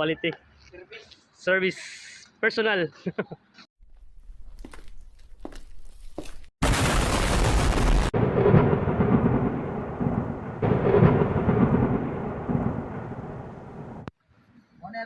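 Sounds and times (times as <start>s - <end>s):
rumbling noise: 6.6s - 14.1s.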